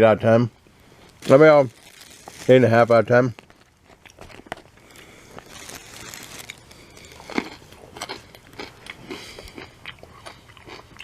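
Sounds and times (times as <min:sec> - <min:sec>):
person chewing crunchy carrot: 0:03.4 - 0:11.0.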